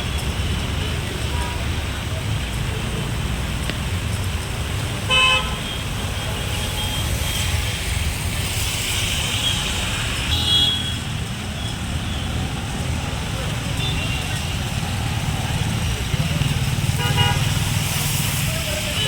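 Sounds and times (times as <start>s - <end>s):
road traffic rumble: 0.0s - 19.0s
vehicle horn honking: 5.1s - 5.8s, 17.0s - 17.6s.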